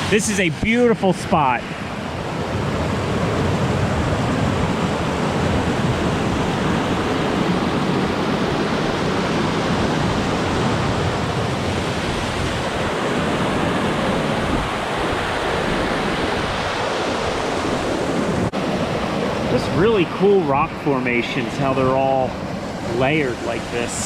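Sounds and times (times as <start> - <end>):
water rushing through rocky pool: 19.5 - 24.0.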